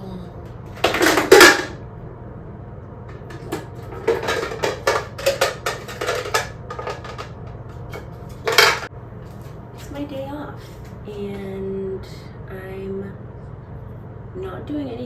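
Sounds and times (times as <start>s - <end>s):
steady low hum: 0.0s - 15.0s
dishes and cutlery clattering: 0.8s - 1.8s, 3.2s - 8.9s.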